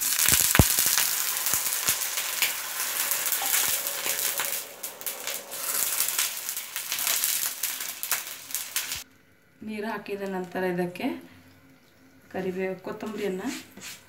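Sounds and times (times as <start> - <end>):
water poured into hot pan: 0.0 - 9.1
onions sizzling in hot oil: 0.0 - 11.0.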